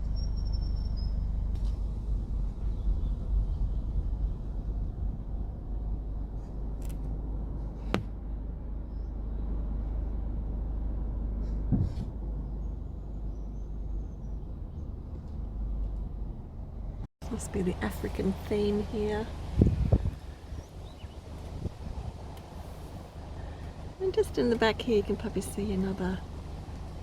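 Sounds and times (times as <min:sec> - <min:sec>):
car driving rumble inside cabin: 0:00.0 - 0:27.0
short thump: 0:07.8 - 0:08.2, 0:11.5 - 0:12.2.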